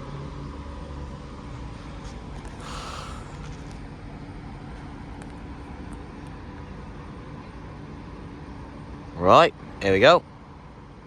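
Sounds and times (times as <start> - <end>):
air hiss: 2.6 - 3.4.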